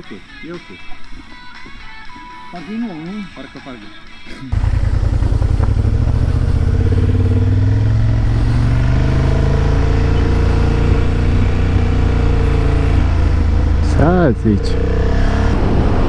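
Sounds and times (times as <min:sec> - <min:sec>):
motorcycle engine running: 0:04.5 - 0:16.0.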